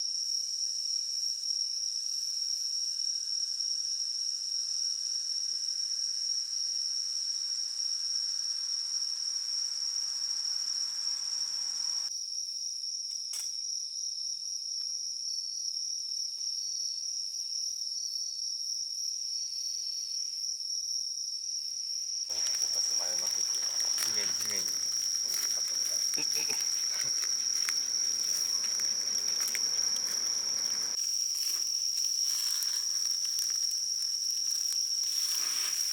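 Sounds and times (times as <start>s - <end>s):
night insects trilling: 1.9s - 12.1s, 21.7s - 35.9s
people's voices: 22.3s - 31.0s.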